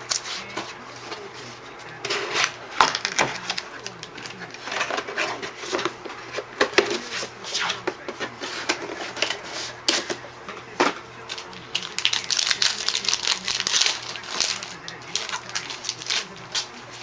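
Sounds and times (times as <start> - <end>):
wrapper crackling and crinkling: 2.0 - 7.2, 11.2 - 17.0.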